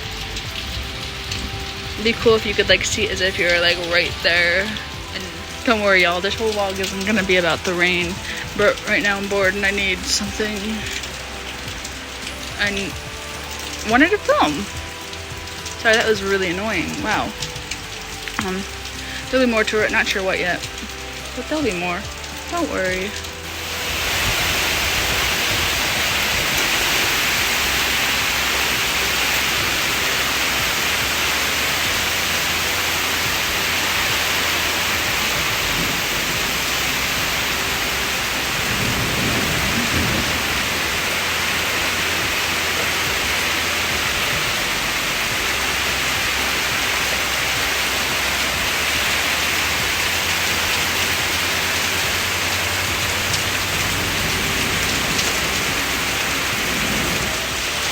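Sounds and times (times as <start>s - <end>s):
low thunder rumble: 0.0s - 14.0s, 34.7s - 46.0s, 49.7s - 57.9s
heavy rain falling: 0.0s - 57.9s.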